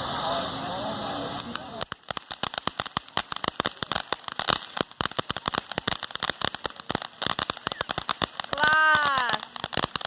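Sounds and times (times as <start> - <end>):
fireworks crackling: 0.0 - 10.0.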